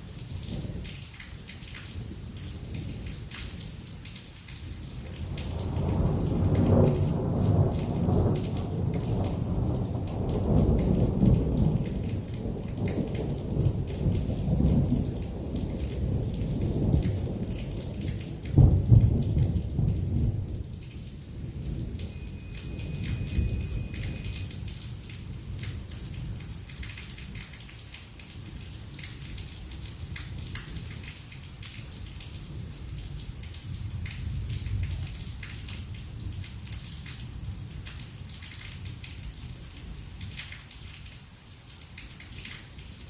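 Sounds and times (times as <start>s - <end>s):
heavy rain pattering: 0.0s - 43.0s
thunder rumbling: 5.1s - 26.5s.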